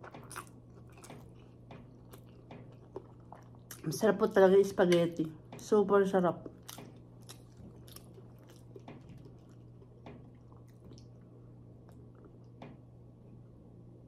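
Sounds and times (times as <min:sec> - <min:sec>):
person chewing food: 0:00.0 - 0:03.9, 0:06.4 - 0:12.6
low steady hum: 0:00.0 - 0:14.0.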